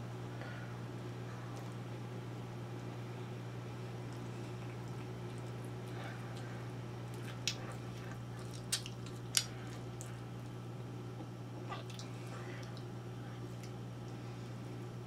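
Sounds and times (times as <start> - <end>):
low electrical hum: 0.0 - 15.0
person chewing with mouth open: 4.0 - 10.3, 11.6 - 13.8
lip-smacking clicks: 7.1 - 10.1.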